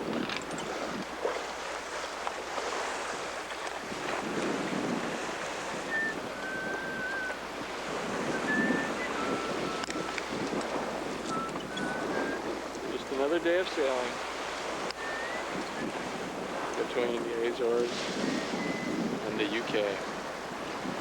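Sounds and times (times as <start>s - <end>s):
ocean waves rushing: 0.0s - 21.0s
wind buffeting microphone: 0.0s - 21.0s
faint whistle-like tones: 5.8s - 7.4s, 8.2s - 10.2s, 11.2s - 12.5s, 14.9s - 15.9s, 18.3s - 19.0s.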